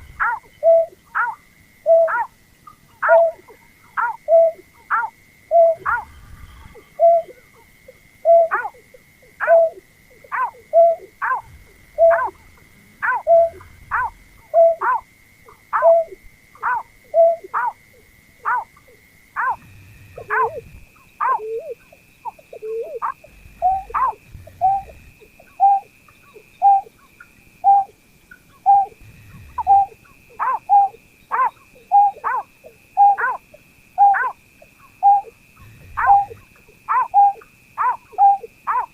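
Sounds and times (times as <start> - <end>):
bird calling whistled notes: 0.2 - 1.0, 4.0 - 6.1, 8.2 - 8.7, 9.4 - 12.4, 13.0 - 15.0, 15.7 - 17.7, 20.2 - 26.9, 27.6 - 27.9, 28.6 - 32.4, 33.0 - 33.4, 34.0 - 35.4, 36.0 - 38.9.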